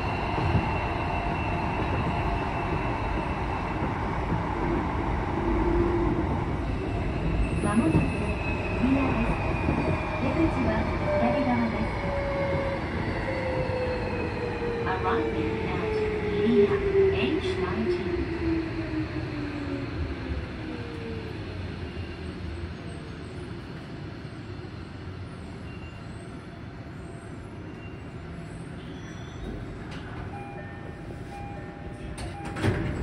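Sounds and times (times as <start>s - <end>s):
wheels rumbling on rail: 0.0s - 24.4s, 27.0s - 33.0s.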